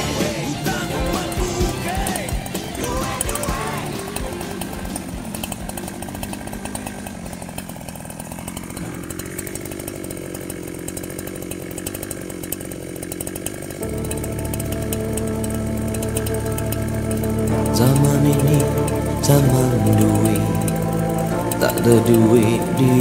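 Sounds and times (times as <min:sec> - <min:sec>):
background music: 0:00.0 - 0:06.8, 0:13.8 - 0:23.0
chainsaw engine running: 0:00.0 - 0:23.0.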